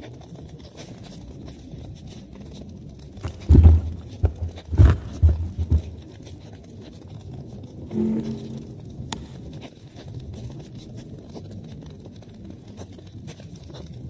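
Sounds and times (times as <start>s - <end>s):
loud low thuds: 3.2s - 6.0s.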